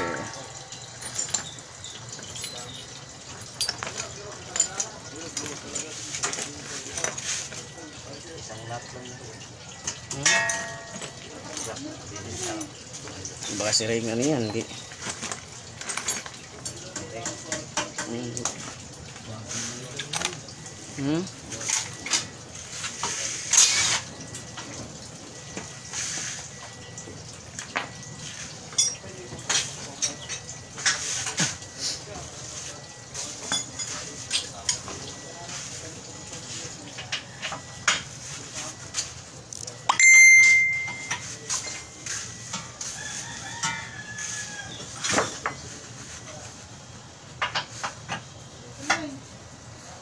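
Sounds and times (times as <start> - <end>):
metal tools clinking: 0.2 - 7.6, 9.7 - 17.8, 19.9 - 20.8, 27.6 - 31.7, 33.2 - 34.9, 39.5 - 42.6
rooster crowing: 42.8 - 45.1.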